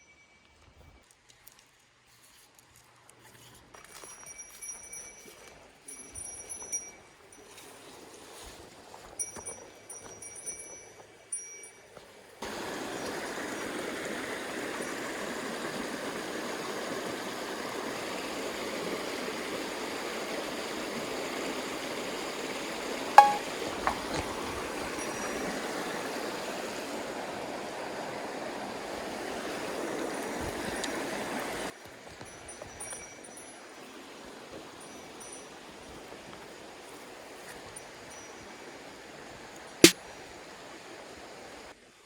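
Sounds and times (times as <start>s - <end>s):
stream rushing: 12.4s - 31.7s.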